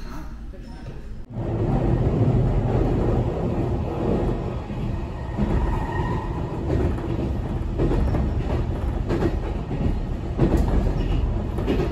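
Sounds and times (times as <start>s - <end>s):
train rumbling at speed: 1.2s - 11.9s
wheels clacking over rail joints: 2.6s - 11.9s.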